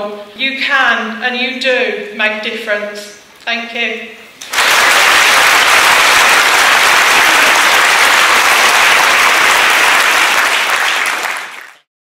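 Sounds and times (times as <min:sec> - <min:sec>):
audience applause: 0:04.4 - 0:11.9.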